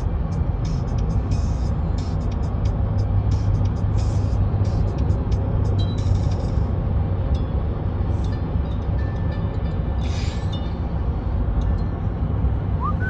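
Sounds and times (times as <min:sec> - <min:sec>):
moving vehicle rumble: 0:00.0 - 0:13.0.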